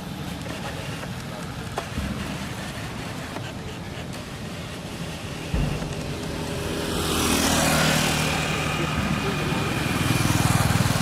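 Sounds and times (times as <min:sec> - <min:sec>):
road noise: 0:00.0 - 0:11.0
vehicle engine hum: 0:00.0 - 0:11.0
low thump: 0:05.4 - 0:07.8.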